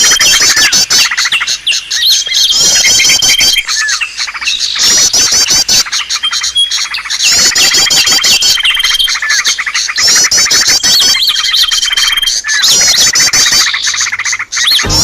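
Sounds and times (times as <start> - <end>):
bird whistle held steady: 0.0 - 15.0
small birds chirping and trilling: 0.0 - 15.0.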